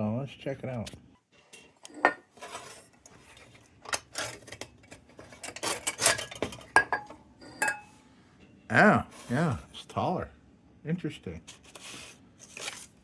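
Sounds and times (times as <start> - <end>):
glass and metal clinking and scraping: 1.4 - 8.0.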